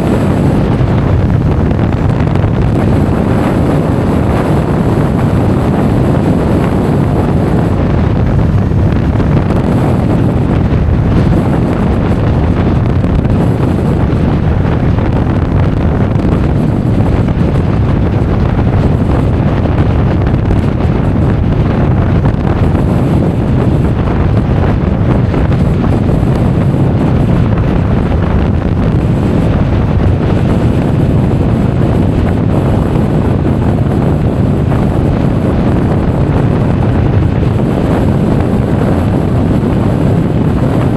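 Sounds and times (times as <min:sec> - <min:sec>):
wind rumble on microphone: 0:00.0 - 0:40.9.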